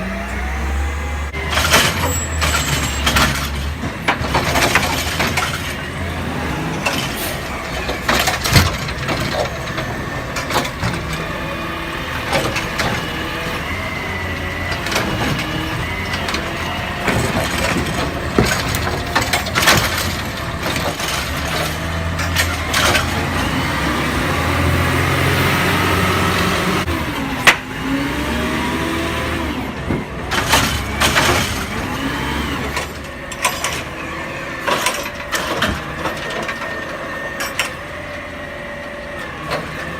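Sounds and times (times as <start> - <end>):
garbage truck diesel engine: 0.0 - 39.9
metal clanks and knocks: 1.4 - 6.1, 6.7 - 11.5, 12.1 - 23.5, 32.7 - 38.3.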